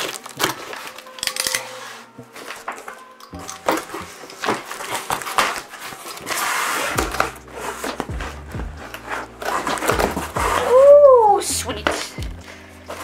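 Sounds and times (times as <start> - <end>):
cardboard rasping: 3.8 - 11.0.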